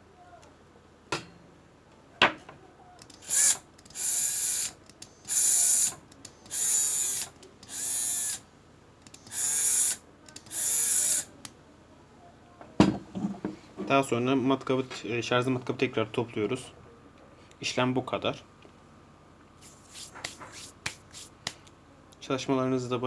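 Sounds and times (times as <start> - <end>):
sharp clicks: 3.0 - 8.4, 9.0 - 11.6
small electric motor spinning up: 3.2 - 8.4, 9.3 - 11.3.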